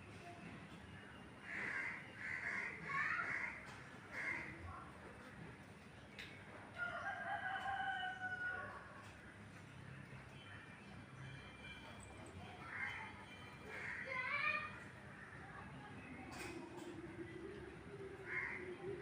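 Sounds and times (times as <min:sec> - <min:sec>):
rooster crowing: 0:06.8 - 0:09.0.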